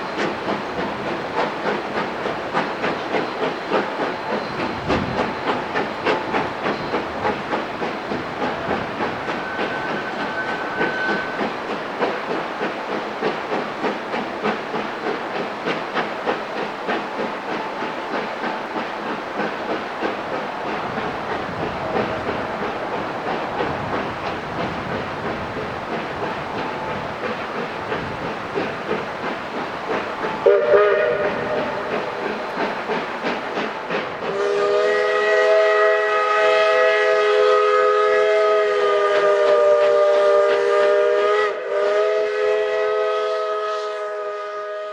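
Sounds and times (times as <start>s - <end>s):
hiss of steam: 0.0s - 44.9s
steam locomotive exhaust chuffing: 0.0s - 44.9s
locomotive whistle blast: 9.2s - 11.6s, 30.3s - 32.6s, 34.3s - 44.9s.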